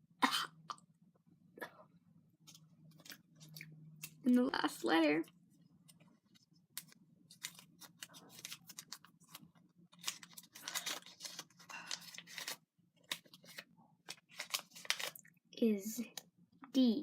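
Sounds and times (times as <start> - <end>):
paper slip rustling and crinkling: 2.4 - 3.6, 5.8 - 15.3.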